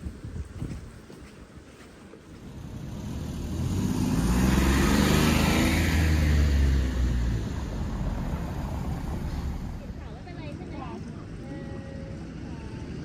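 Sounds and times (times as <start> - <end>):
motor vehicle passing: 2.4 - 10.5.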